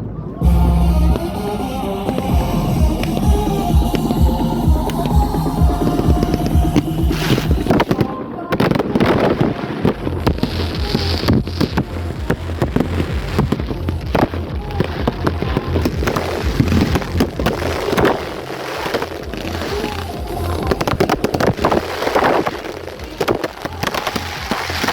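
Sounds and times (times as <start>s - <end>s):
murmur of voices: 0.0s - 24.9s
low hum: 0.4s - 7.9s.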